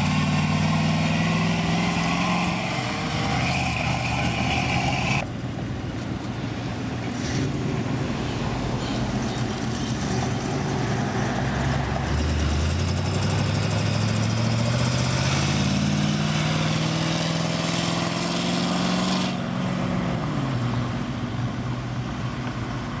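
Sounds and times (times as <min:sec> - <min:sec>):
car engine accelerating: 0:00.0 - 0:05.2, 0:09.6 - 0:23.0
engines idling: 0:00.0 - 0:15.1.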